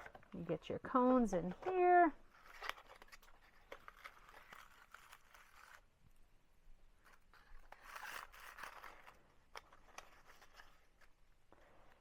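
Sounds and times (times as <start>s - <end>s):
paper packaging crinkling: 1.6s - 5.9s, 7.0s - 11.2s.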